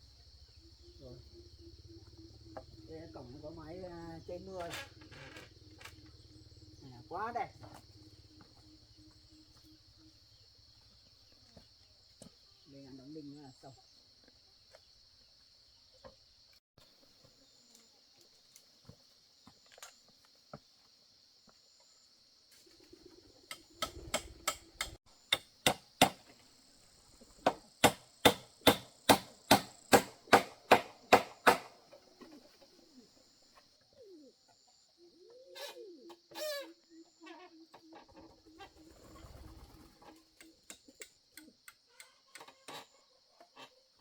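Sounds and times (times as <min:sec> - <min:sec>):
hammer driving nails into wood: 0:23.8 - 0:26.2, 0:27.5 - 0:31.8.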